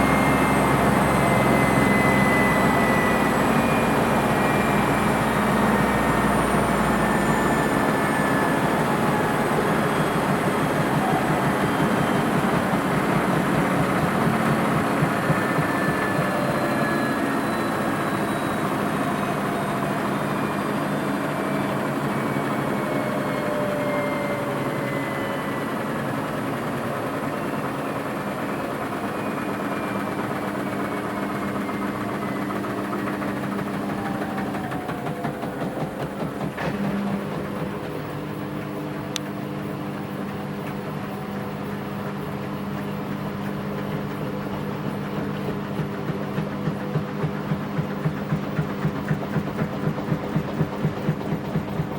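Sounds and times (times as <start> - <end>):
washing machine spinning: 0.0 - 51.9.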